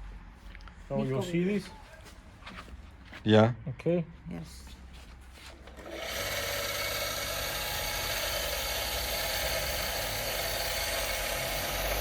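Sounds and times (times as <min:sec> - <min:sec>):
power tool removing rust: 0:05.7 - 0:12.0.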